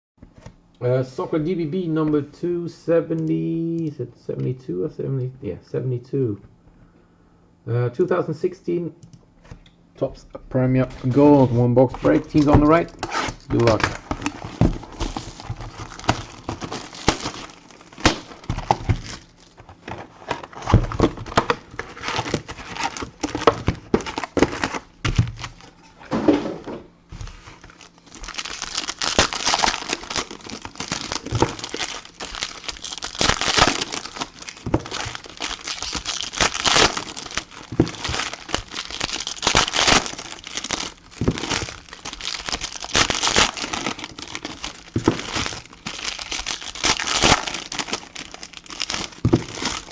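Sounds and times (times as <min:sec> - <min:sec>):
wrapping crinkling and tearing: 0:10.9 - 0:25.8, 0:27.1 - 0:49.9.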